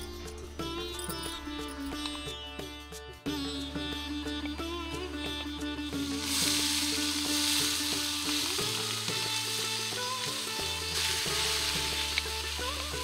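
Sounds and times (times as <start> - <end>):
fruit sizzling in hot oil: 5.9 - 13.0.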